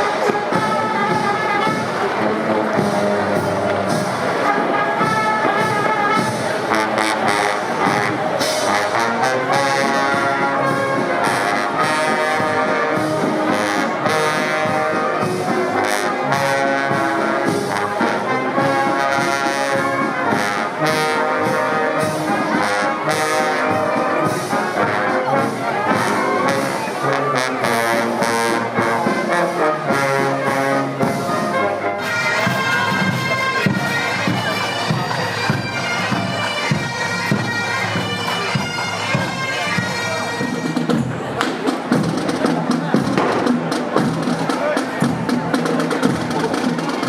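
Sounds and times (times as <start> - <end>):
brass band playing: 0.0 - 47.0
sharp beats: 40.4 - 47.0.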